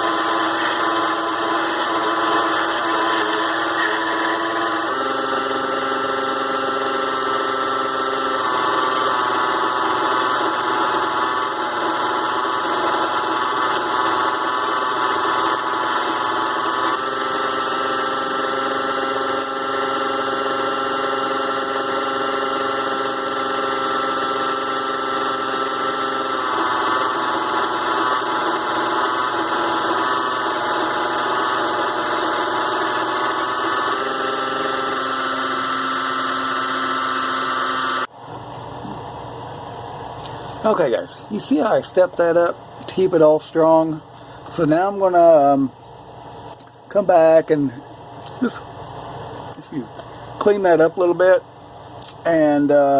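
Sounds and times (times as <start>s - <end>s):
lathe motor whining: 0.0s - 38.1s.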